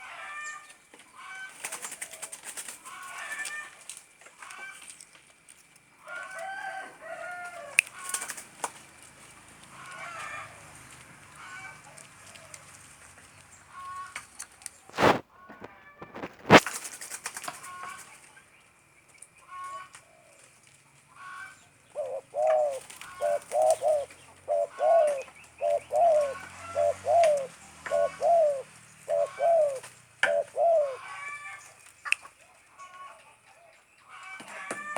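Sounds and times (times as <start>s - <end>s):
dove cooing: 21.9s - 31.6s.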